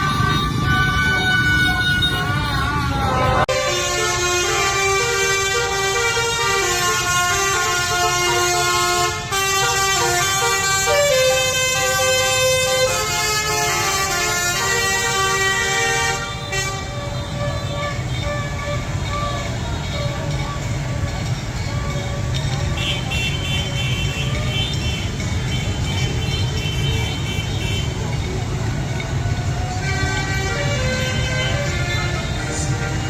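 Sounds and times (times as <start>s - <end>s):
horns blaring: 0.0s - 33.0s
street traffic rumble: 0.0s - 33.0s
crowd: 19.0s - 30.8s.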